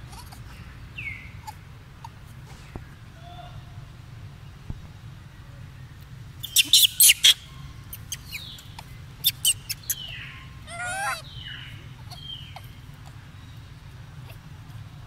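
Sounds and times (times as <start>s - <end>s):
bird whistles and warbling: 6.4s - 12.7s.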